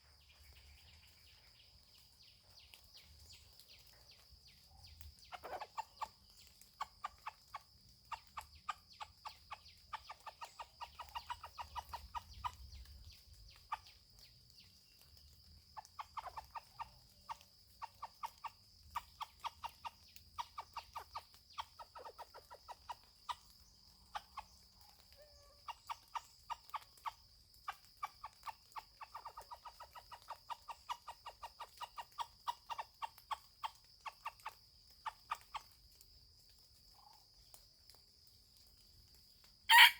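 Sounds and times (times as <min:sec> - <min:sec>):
junglefowl clucking: 0:05.2 - 0:12.9, 0:15.8 - 0:35.8, 0:39.7 - 0:39.9.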